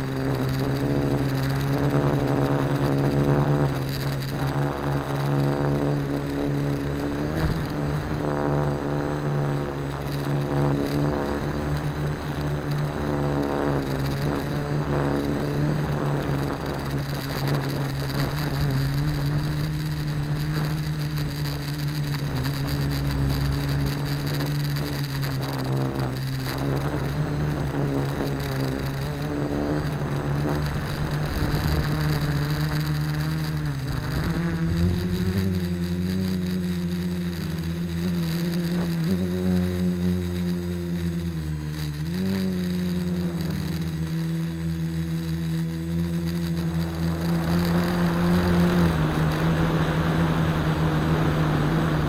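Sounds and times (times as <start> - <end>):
quadcopter motors humming: 0.0 - 52.0.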